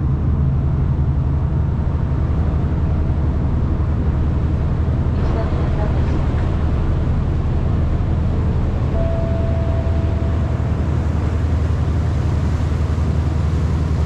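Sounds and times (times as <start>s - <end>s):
boat engine droning: 0.0s - 14.0s
steady electronic tone: 8.5s - 11.8s.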